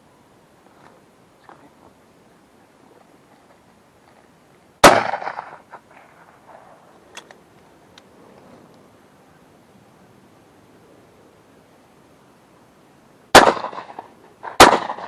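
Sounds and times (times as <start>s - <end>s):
shotgun shot with echo: 4.8s - 5.6s, 13.4s - 15.0s
faint clicks: 7.1s - 8.8s.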